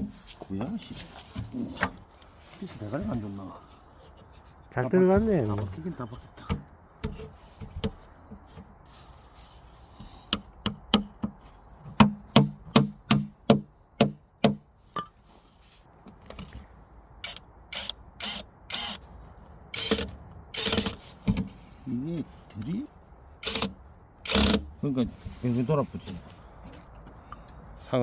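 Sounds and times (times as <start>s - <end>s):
sharp knocks on camping gear: 12.0s - 15.1s.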